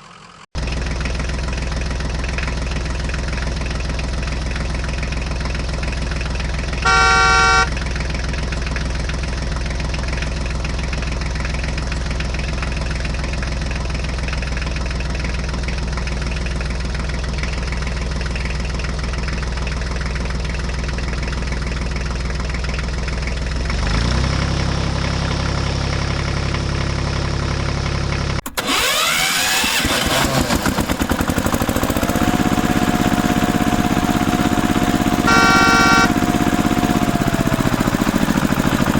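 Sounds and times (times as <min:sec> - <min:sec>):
tractor engine running: 0:00.0 - 0:38.9
horn beep: 0:06.8 - 0:07.7, 0:35.2 - 0:36.3.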